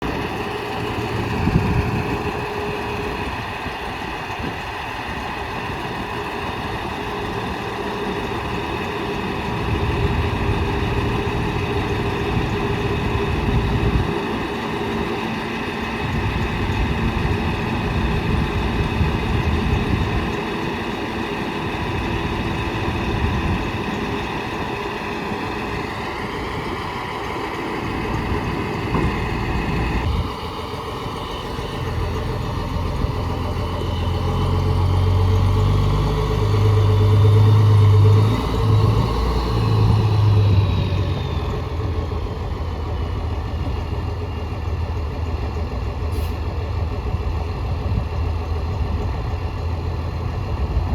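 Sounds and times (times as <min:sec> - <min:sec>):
truck engine running: 0:00.0 - 0:50.9.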